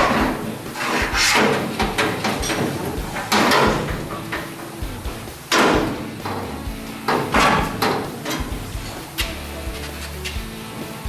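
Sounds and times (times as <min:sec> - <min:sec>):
metal knocks clatters and scrapes: 0:00.0 - 0:04.9.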